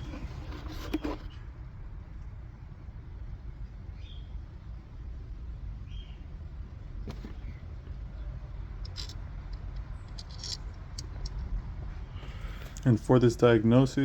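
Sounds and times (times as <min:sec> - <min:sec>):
plastic clicks and scrapes: 0:00.0 - 0:01.3
low background rumble: 0:01.3 - 0:14.0.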